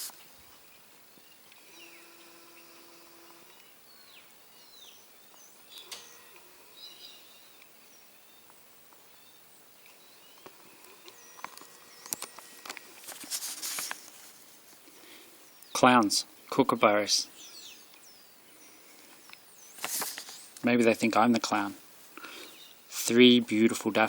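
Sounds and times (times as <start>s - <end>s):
birds chirping and whistling: 1.2s - 8.4s, 17.4s - 19.8s, 22.3s - 22.8s.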